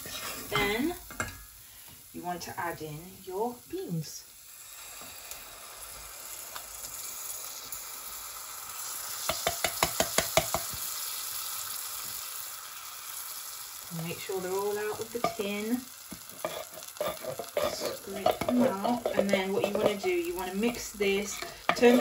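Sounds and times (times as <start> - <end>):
food sizzling in a saucepan: 0.0 - 22.0
tin knocking against pan: 9.3 - 10.7.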